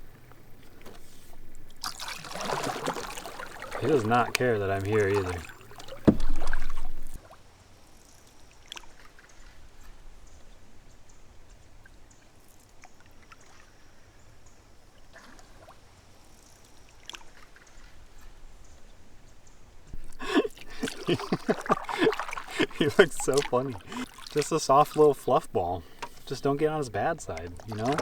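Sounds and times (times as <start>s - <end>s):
river water lapping around canoe: 0.0s - 28.0s
faint ticks and knocks: 5.7s - 7.2s.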